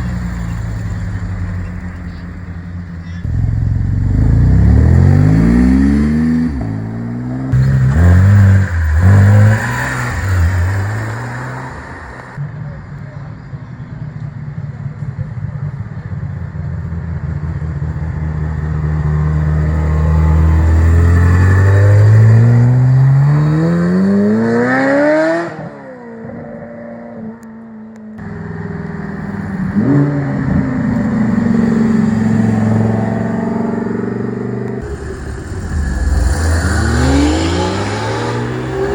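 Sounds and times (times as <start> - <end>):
car engine accelerating: 0.0 - 12.5, 15.7 - 25.8, 28.2 - 38.9
engine revving: 3.2 - 12.4, 18.6 - 25.8, 29.5 - 38.9.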